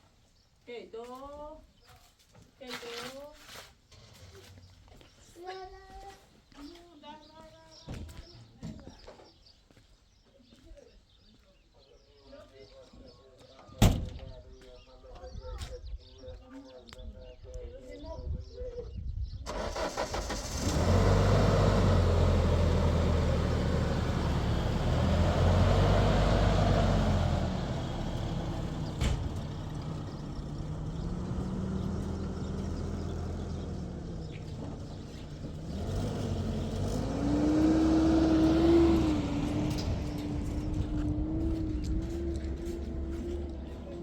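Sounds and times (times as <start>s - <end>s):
engine running: 19.5s - 44.0s.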